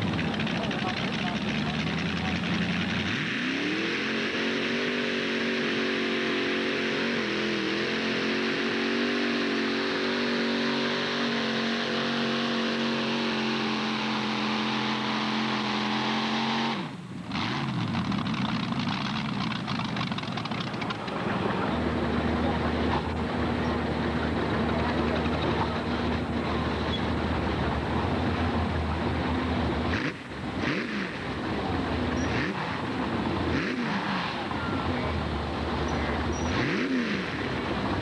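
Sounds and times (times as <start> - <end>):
tractor engine at full throttle: 0.0 - 38.0
rough crackling noise: 17.3 - 21.8.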